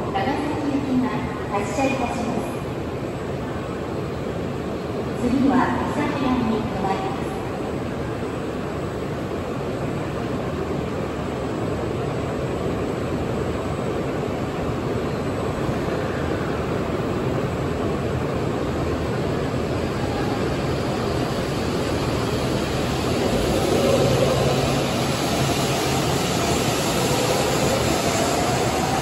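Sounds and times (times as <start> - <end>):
train running and motor noise: 0.0 - 29.0
low hum: 22.0 - 26.8.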